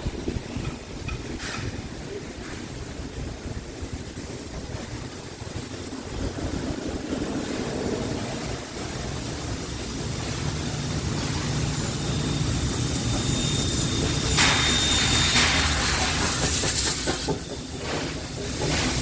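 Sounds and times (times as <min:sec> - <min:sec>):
steam hissing: 0:00.0 - 0:19.0
steam locomotive rumble: 0:00.0 - 0:19.0
thin high tone: 0:11.2 - 0:15.8.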